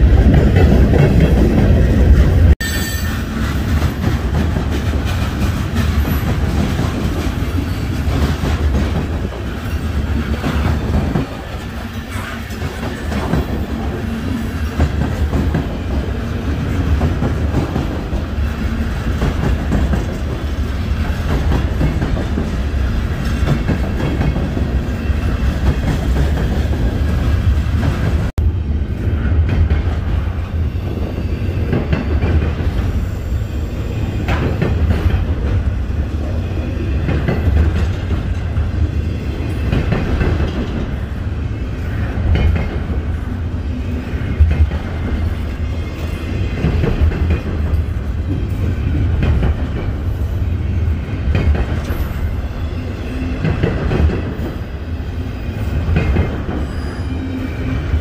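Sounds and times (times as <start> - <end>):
freight cars rumbling and clacking: 3.3 - 28.4.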